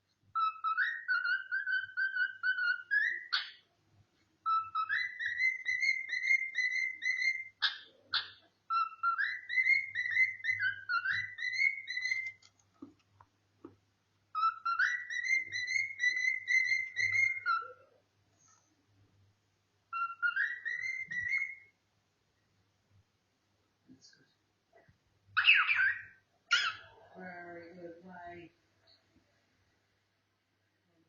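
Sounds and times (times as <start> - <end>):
cockatiel whistling a tune: 0.3 - 3.6, 4.4 - 12.4, 14.3 - 17.9, 19.9 - 21.7, 25.4 - 26.9.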